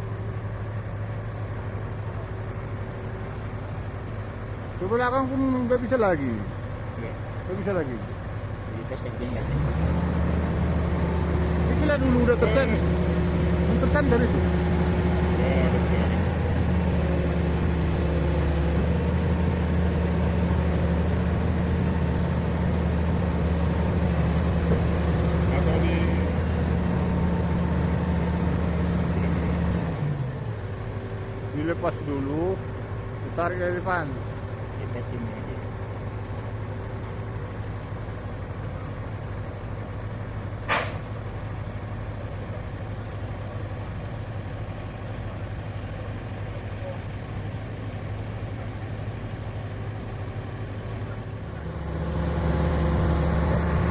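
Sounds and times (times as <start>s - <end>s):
diesel engine idling: 0.0s - 53.9s
air brake hiss: 40.7s - 41.2s.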